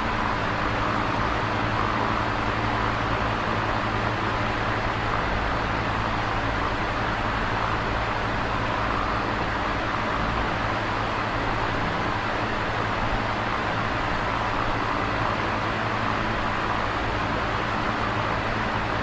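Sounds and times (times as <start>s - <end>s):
electric fan whooshing: 0.0s - 19.0s
fan low hum: 0.0s - 19.0s.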